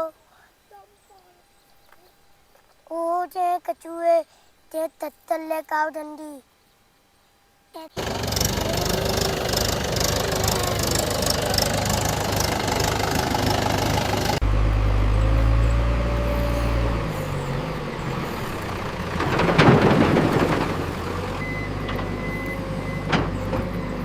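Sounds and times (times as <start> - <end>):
vehicle engine running: 7.9 - 24.0.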